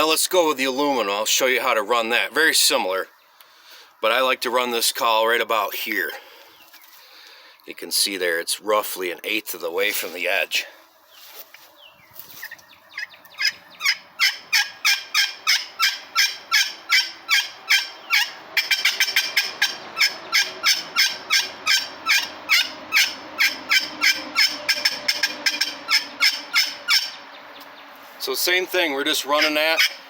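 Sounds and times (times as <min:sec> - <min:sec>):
turkey pot call hen notes: 0:12.4 - 0:27.3, 0:28.9 - 0:30.0.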